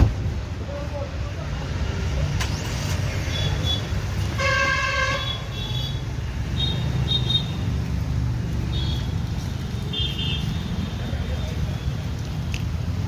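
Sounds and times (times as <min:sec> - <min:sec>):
road traffic rumble: 0:00.0 - 0:13.0
vehicle horn honking: 0:04.3 - 0:06.0.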